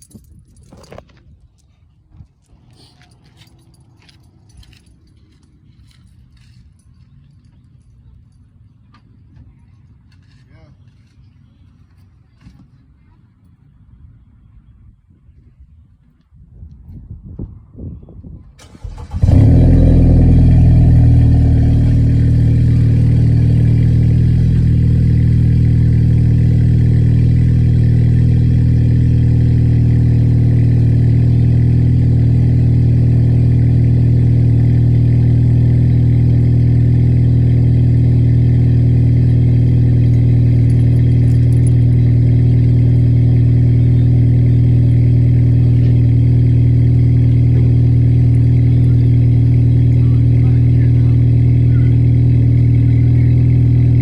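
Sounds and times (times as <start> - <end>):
car engine fast idle: 18.6 - 54.0.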